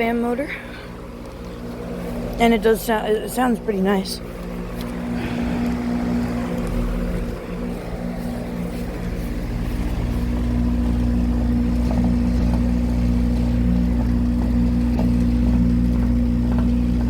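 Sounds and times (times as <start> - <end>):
air conditioner hum: 0.0 - 17.0
fan whoosh: 4.2 - 17.0.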